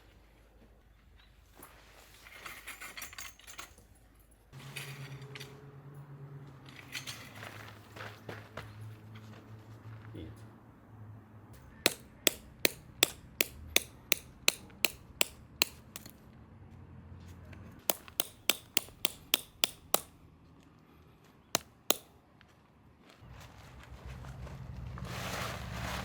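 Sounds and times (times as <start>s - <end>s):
hammer striking tent pegs: 11.9s - 16.1s, 17.9s - 20.1s, 21.6s - 22.1s.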